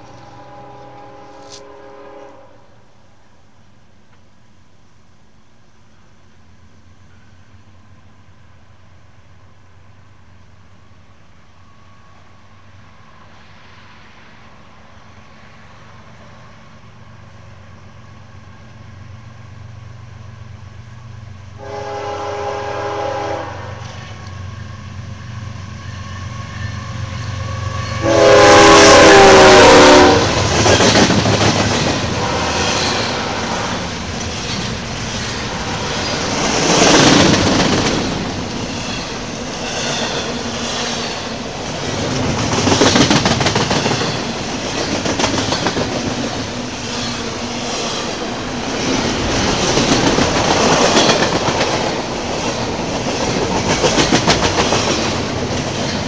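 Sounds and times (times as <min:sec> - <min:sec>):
diesel locomotive rumbling: 0:00.0 - 0:02.4, 0:14.8 - 0:56.0
train horn blasts: 0:00.0 - 0:02.9, 0:21.6 - 0:24.4, 0:26.0 - 0:30.5, 0:32.0 - 0:33.9
freight cars clattering on rails: 0:30.2 - 0:56.0.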